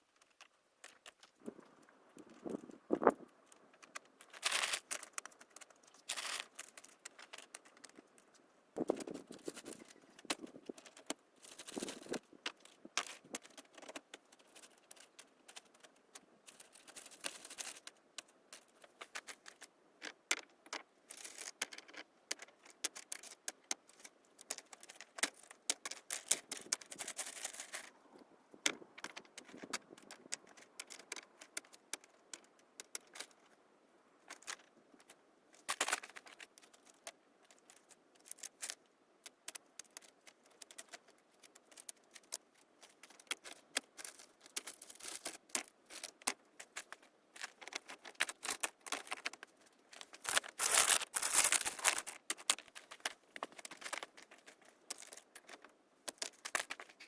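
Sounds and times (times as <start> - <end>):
hard objects clicking and scraping: 18.6 - 28.0, 28.6 - 33.4, 39.5 - 57.0.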